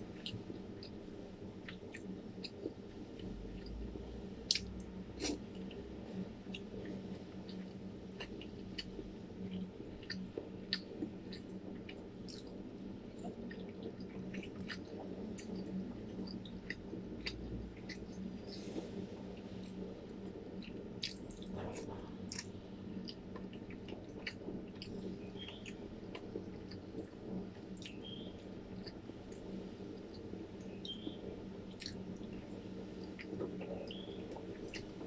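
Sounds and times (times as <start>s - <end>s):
wet chewing and mouth smacking: 4.4s - 5.8s, 6.4s - 18.8s, 19.4s - 31.0s, 31.7s - 32.4s, 33.0s - 35.0s.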